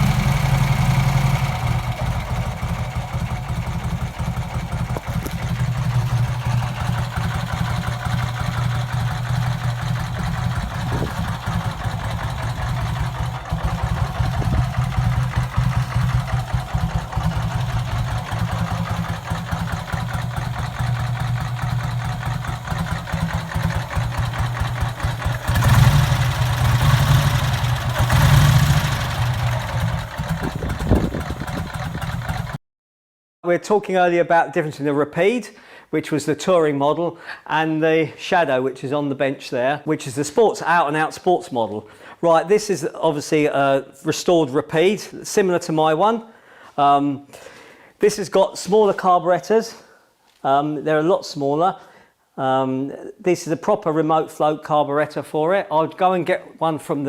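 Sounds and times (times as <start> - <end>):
motorcycle engine idling and revving: 0.0 - 32.6.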